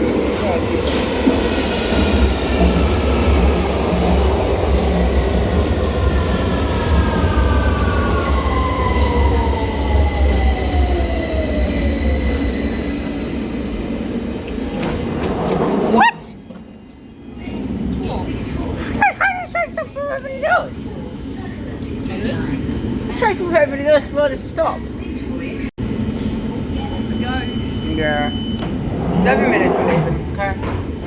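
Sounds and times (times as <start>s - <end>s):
electric train arriving: 0.0s - 19.0s
train wheel squeal: 10.0s - 16.1s, 26.8s - 29.6s.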